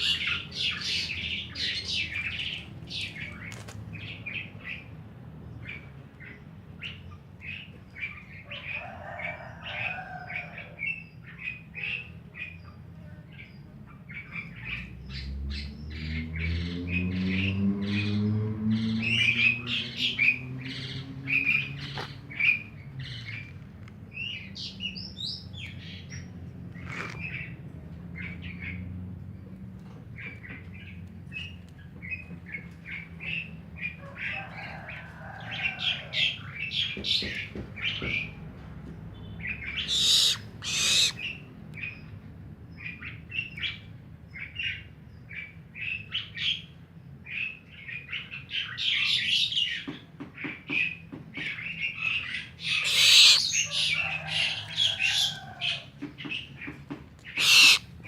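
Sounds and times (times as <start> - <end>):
barn owl chirps: 39.5 - 41.4, 51.9 - 55.8, 57.2 - 57.9
barn owl hissing screeches: 39.8 - 41.2, 52.6 - 54.4, 57.3 - 57.9.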